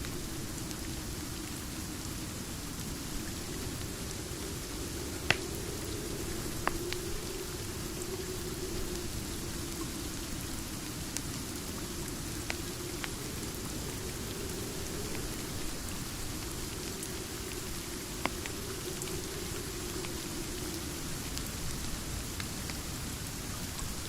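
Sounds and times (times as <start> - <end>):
wood fire crackling: 0.0 - 23.2
steady rain: 0.0 - 24.0.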